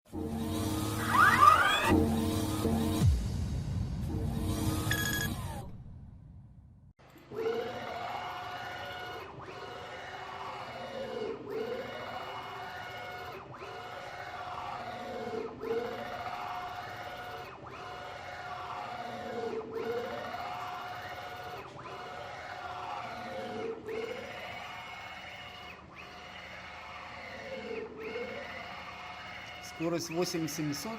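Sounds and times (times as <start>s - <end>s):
stepper motor whine: 4.1s - 5.8s.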